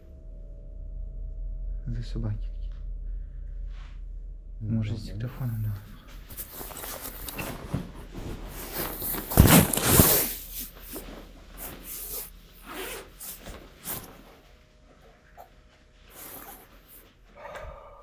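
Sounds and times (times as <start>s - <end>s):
close rustling and handling: 5.7s - 17.2s.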